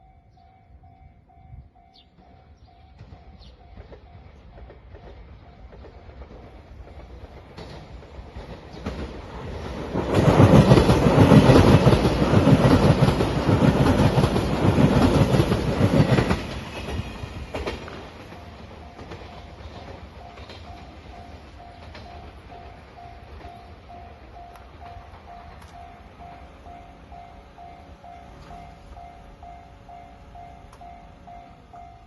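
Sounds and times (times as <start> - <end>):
train wheels clattering over rail joints: 3.0 - 26.7.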